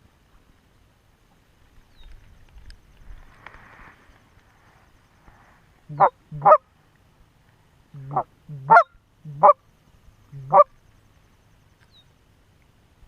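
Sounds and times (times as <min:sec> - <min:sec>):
goose honking: 0:05.9 - 0:06.6, 0:08.0 - 0:09.6, 0:10.3 - 0:10.7.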